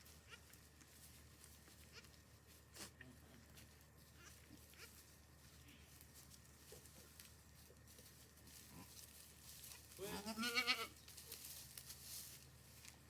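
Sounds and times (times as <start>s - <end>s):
goat bleating: 4.2s - 5.0s, 10.0s - 11.0s.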